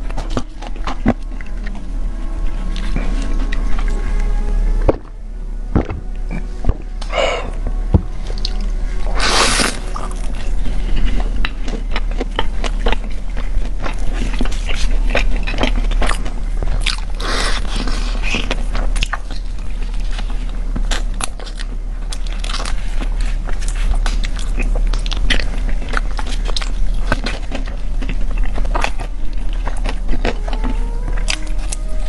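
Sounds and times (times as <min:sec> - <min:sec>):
crunchy chewing: 0:00.0 - 0:32.0.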